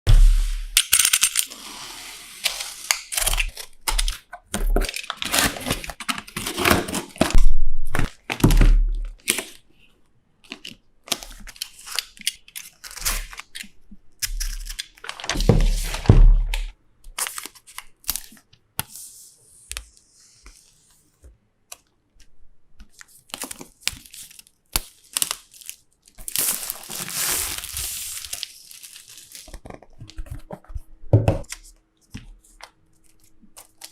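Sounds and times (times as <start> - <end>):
plastic wrap crinkling and tearing: 2.4 - 9.6, 10.5 - 18.4, 22.9 - 30.4.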